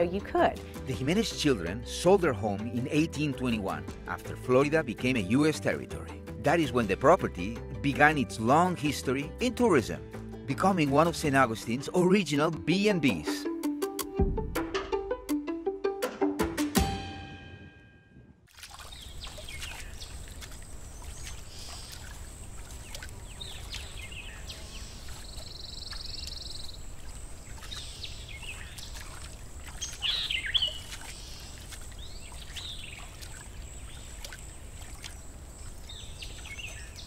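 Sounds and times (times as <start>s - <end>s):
birds chirping and calling: 18.8s - 37.0s.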